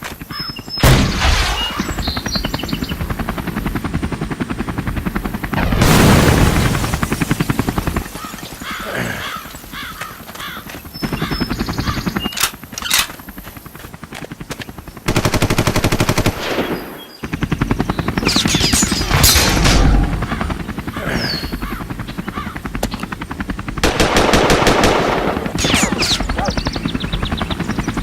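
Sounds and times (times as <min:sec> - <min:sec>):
machine-gun fire bursts: 0:15.1 - 0:16.8, 0:23.8 - 0:26.4.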